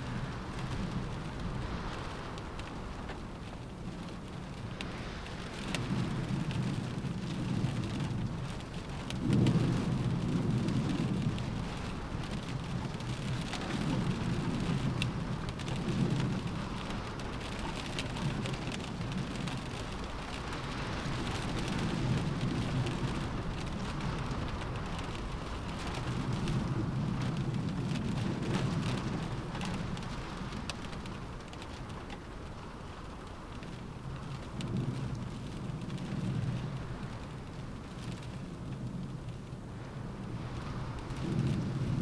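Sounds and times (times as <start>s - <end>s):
rain on a window: 0.0s - 42.0s.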